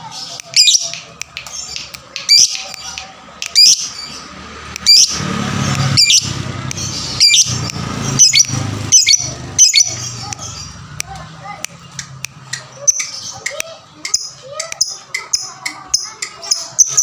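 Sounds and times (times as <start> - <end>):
lovebird chirping: 0.2 - 5.2, 5.8 - 10.8.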